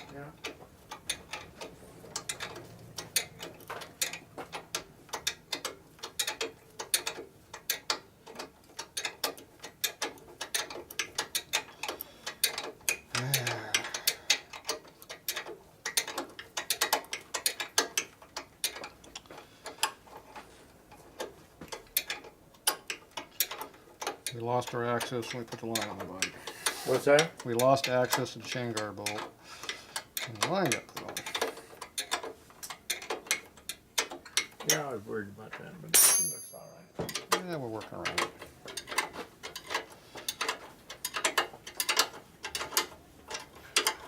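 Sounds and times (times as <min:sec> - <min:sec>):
person speaking: 0:34.6 - 0:38.3.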